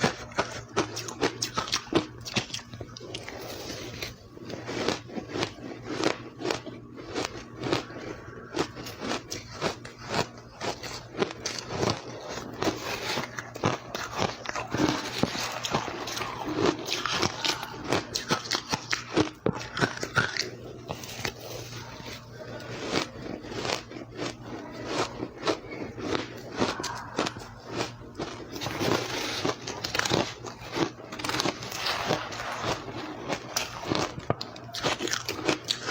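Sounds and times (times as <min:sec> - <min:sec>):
ice being chewed: 0:00.0 - 0:35.9.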